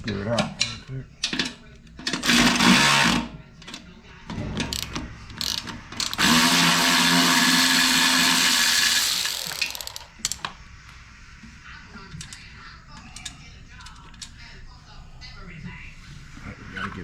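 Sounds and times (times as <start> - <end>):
power drill running: 2.2 - 3.2, 6.1 - 10.0
tool clicks: 4.6 - 6.6, 9.0 - 10.5.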